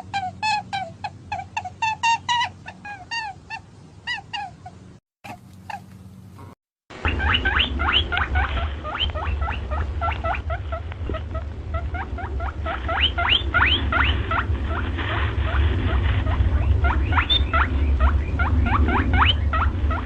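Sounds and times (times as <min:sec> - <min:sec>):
small animal squeaking: 0:00.0 - 0:14.8, 0:15.5 - 0:20.0
steady low hum: 0:04.6 - 0:20.0.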